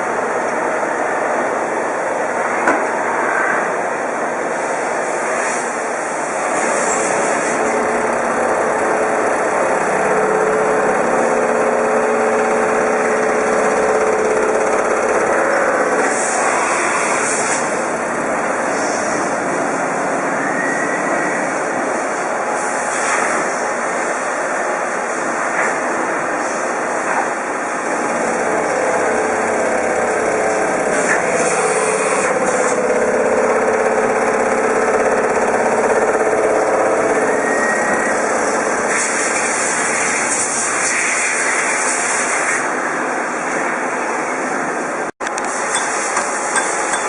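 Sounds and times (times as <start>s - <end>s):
high steady whine: 0.0s - 22.5s
metal lathe running: 0.1s - 18.8s, 27.8s - 40.5s, 45.2s - 47.0s.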